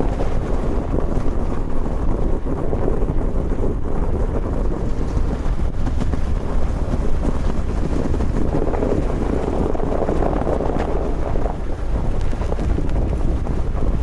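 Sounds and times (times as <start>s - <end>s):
wind blowing across microphone: 0.0s - 14.0s.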